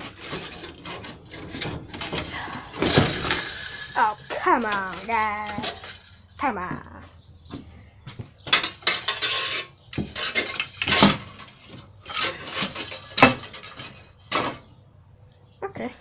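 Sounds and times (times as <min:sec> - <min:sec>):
metal tools clanking: 0:00.0 - 0:06.5, 0:08.4 - 0:14.8.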